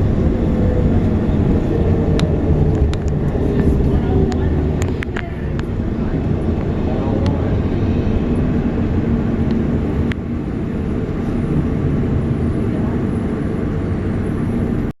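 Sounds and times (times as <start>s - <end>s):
tram car rumbling: 0.0s - 14.9s.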